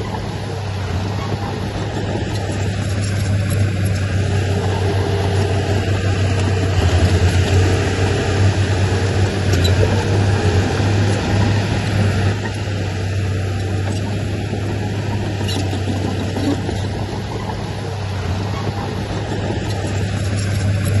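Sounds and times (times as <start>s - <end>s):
heavy diesel engine under load: 0.0s - 21.0s.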